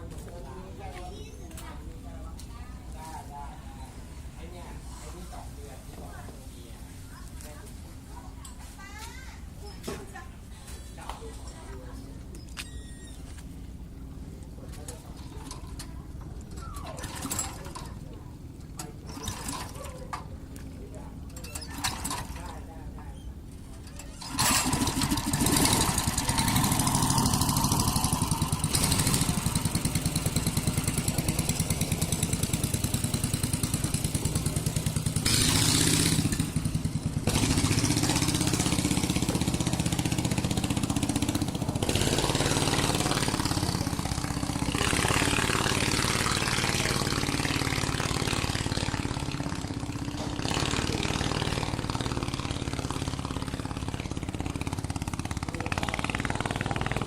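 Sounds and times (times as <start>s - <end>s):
engine running with fast beat: 24.2s - 57.0s.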